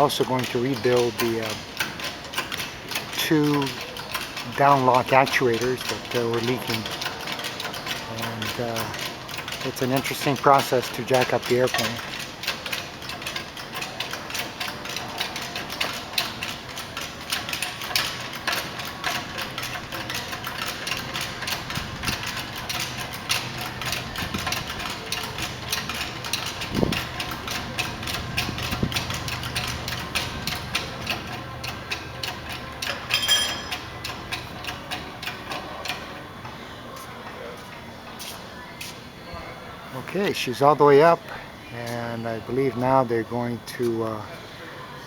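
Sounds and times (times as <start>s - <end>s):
jack pumping clicks and knocks: 0.0s - 36.1s
short high ring: 33.2s - 33.8s.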